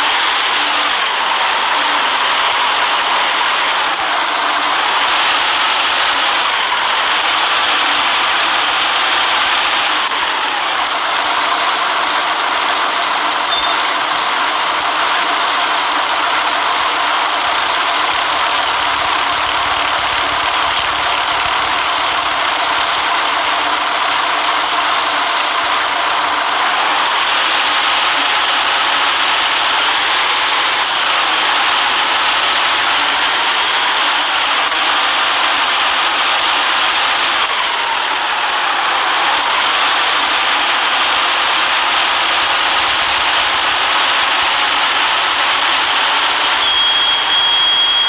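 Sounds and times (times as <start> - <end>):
bus engine and road noise: 0.0 - 48.0.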